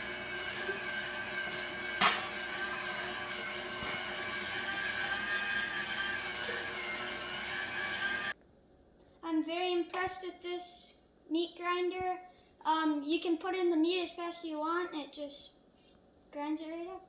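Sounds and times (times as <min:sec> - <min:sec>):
meat grinder motor whine: 0:00.0 - 0:08.4.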